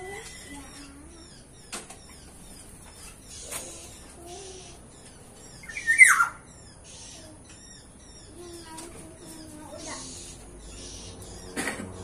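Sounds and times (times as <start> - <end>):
birds chirping: 0.0 - 12.0
loud harsh bird call: 5.6 - 7.4.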